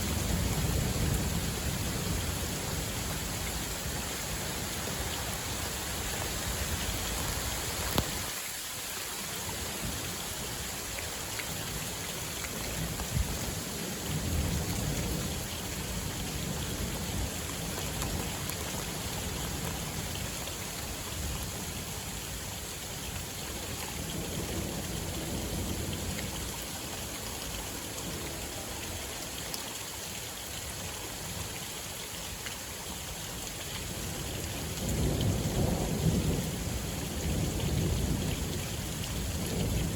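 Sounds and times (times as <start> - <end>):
steady rain: 0.0 - 39.9
sharp raindrop ticks: 7.2 - 8.3.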